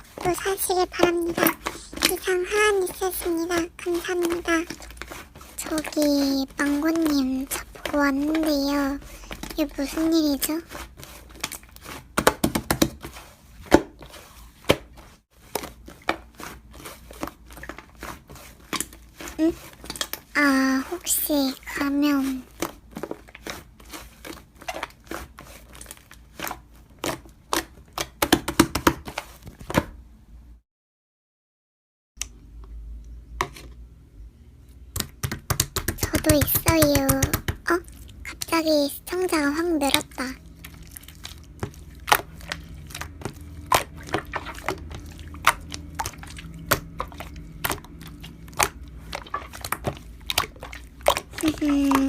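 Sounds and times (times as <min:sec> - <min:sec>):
slime clicking and crackling: 0:00.0 - 0:13.0, 0:35.0 - 0:52.0.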